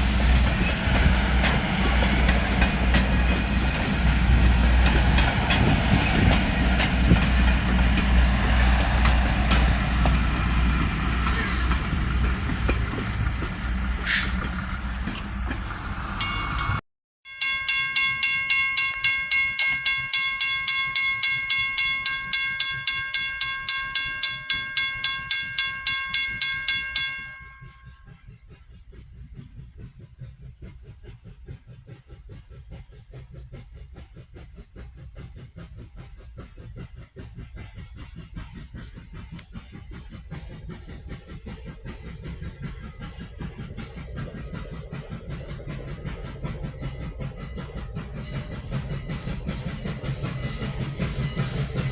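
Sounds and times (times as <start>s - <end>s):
train passing: 0.0s - 51.9s
repeated ringing: 16.2s - 28.1s
steady high tone: 16.2s - 28.1s.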